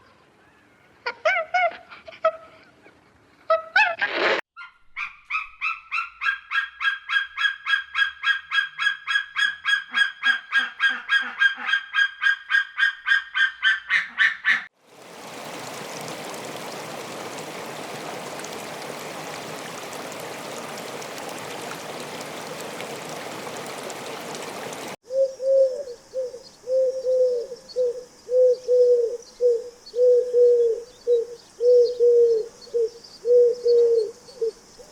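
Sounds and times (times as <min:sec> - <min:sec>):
low hoots: 0:24.3 - 0:34.5.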